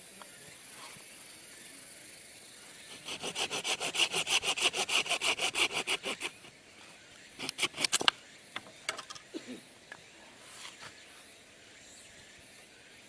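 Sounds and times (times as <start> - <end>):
hand saw cutting wood: 2.9 - 6.5, 7.4 - 8.1.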